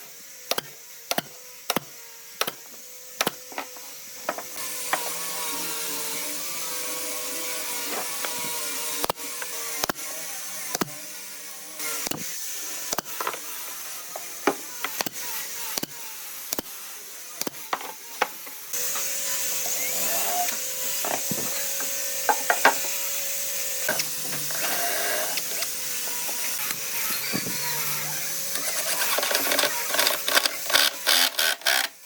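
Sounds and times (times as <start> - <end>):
hissing machine noise: 18.7 - 32.0.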